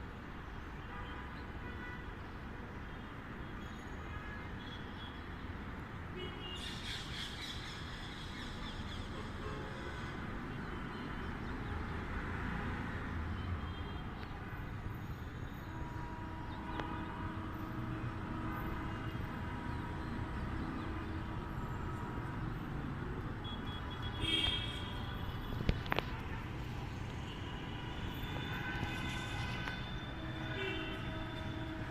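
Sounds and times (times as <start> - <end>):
city traffic rumble: 0.0 - 31.9.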